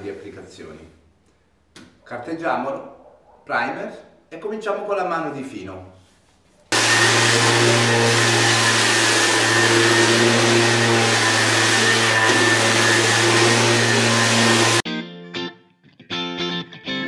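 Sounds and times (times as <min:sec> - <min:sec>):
electric sander on plaster: 0:06.7 - 0:14.8.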